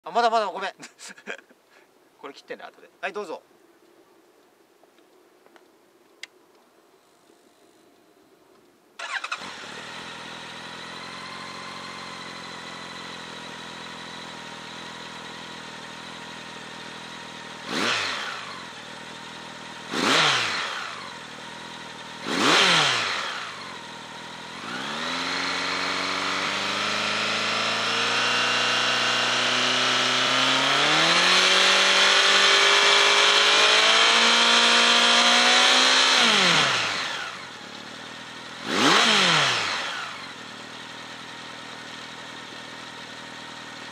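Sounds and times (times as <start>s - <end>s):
motorcycle engine idling and revving: 9.0s - 43.9s
motorcycle engine starting: 9.0s - 43.9s.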